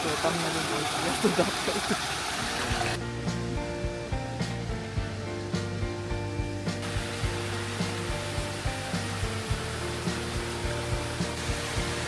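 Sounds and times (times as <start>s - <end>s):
fountain water rushing: 0.0s - 3.0s, 6.7s - 12.0s
background music with beat and bass: 2.4s - 12.0s.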